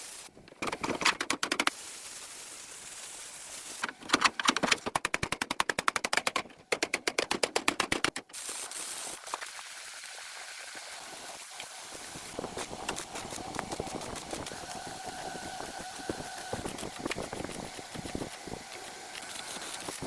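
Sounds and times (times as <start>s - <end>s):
rapid sharp clicks: 4.2s - 8.3s.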